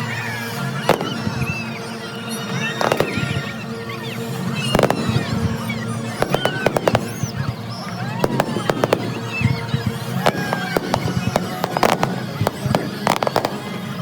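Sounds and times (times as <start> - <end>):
background music: 0.0 - 14.0
fireworks crackling: 0.0 - 14.0
fireworks whistling: 0.0 - 14.0
firework shells bursting: 0.8 - 1.6, 2.6 - 3.5, 6.2 - 7.4, 8.2 - 14.0.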